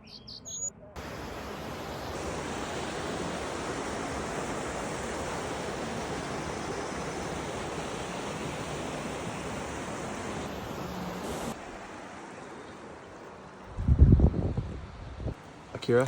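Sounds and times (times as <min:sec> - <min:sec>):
stream water rushing: 0:01.0 - 0:13.8.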